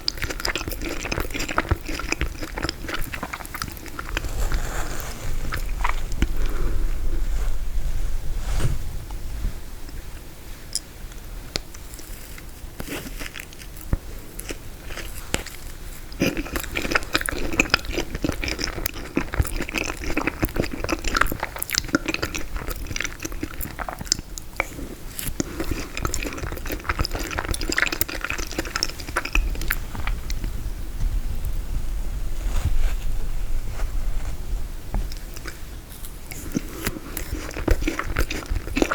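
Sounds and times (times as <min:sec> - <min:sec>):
chewing frozen cake: 0:00.0 - 0:07.1, 0:10.7 - 0:30.7, 0:35.0 - 0:38.9.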